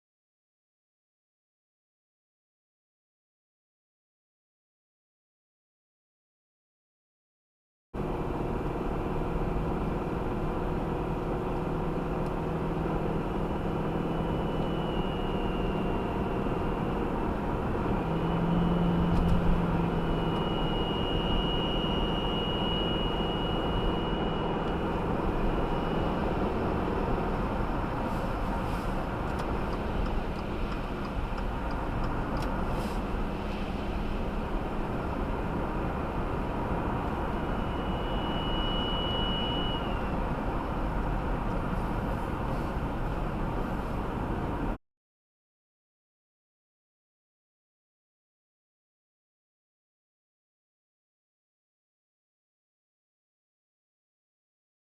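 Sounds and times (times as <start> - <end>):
high-pitched whining squeal: 12.6 - 31.0, 32.8 - 40.8.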